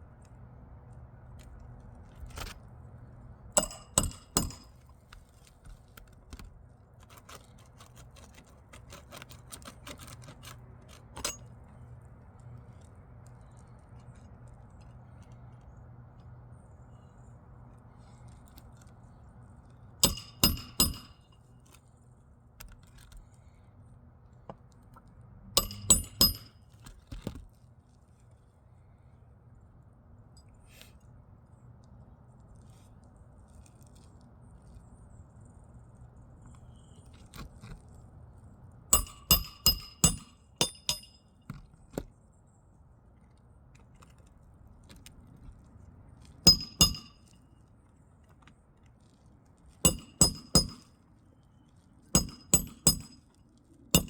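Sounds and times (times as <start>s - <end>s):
hammer striking roofing nails: 3.6s - 4.9s, 20.0s - 21.2s, 25.6s - 26.6s, 38.9s - 42.0s, 46.5s - 47.2s, 49.9s - 50.9s, 52.2s - 53.2s.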